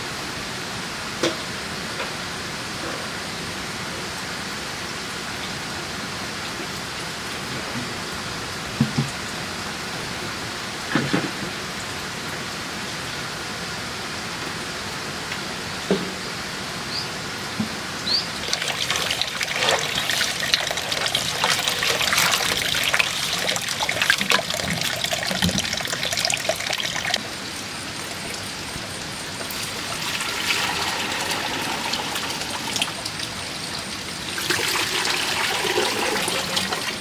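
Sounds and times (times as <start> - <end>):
water trickling and splashing: 18.0 - 37.0.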